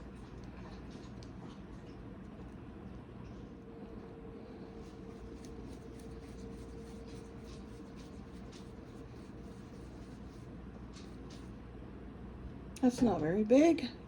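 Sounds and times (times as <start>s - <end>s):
low room hum: 0.0s - 14.0s
dough rubbing on work surface: 4.8s - 11.5s.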